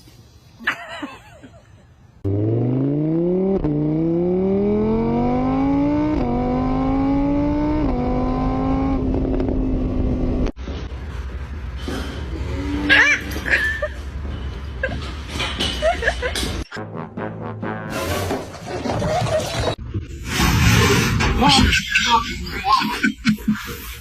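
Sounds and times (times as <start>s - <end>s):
car engine accelerating hard: 2.2s - 10.5s.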